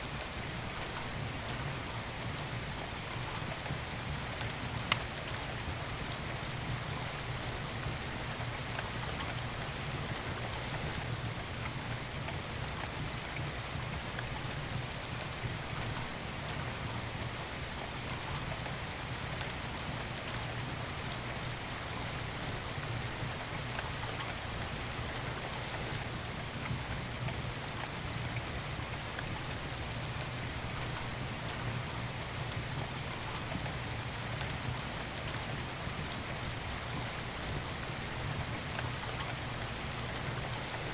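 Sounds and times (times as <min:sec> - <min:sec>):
steady rain falling: 0:00.0 - 0:40.9
faint sharp clicks: 0:04.4 - 0:05.1.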